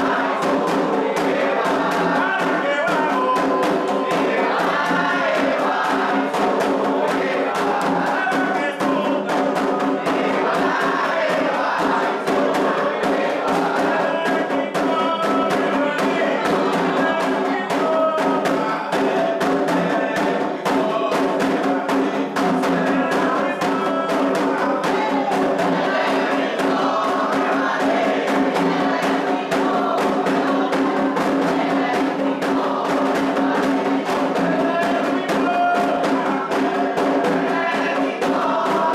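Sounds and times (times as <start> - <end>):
group singing a chant: 0.0 - 38.9
hand drums fast rhythm: 0.0 - 38.9.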